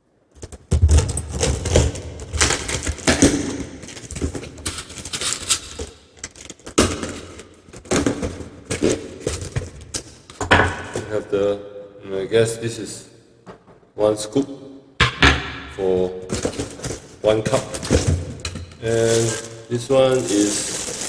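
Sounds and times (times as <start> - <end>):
packaging rustling: 0.4 - 10.4, 16.2 - 21.0
plastic and metal parts clicking: 3.9 - 7.9.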